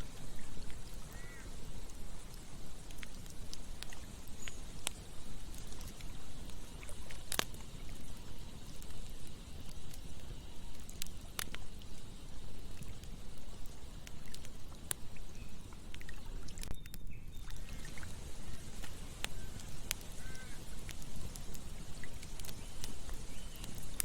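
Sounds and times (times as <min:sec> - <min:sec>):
campfire crackling and popping: 0:00.0 - 0:24.0
river water flowing: 0:17.5 - 0:24.0.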